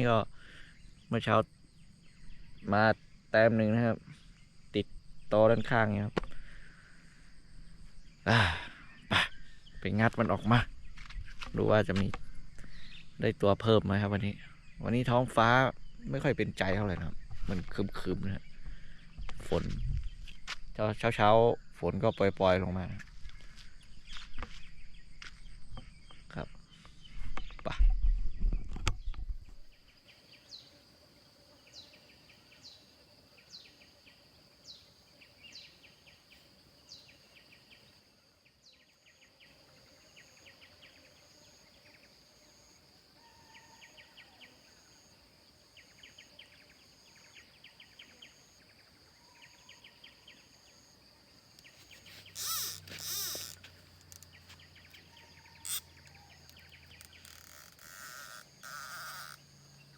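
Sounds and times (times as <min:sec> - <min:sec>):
high insect drone: 0:00.0 - 0:59.9
short falling bird calls: 0:51.6 - 0:59.4
rapid bird chirping: 0:51.6 - 0:59.9.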